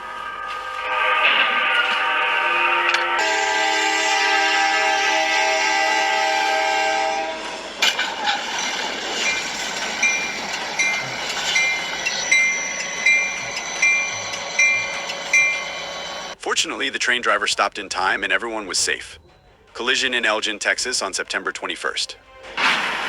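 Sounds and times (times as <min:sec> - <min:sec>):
train horn chord: 0:00.0 - 0:07.7, 0:22.2 - 0:23.0
train rumbling: 0:00.0 - 0:23.0.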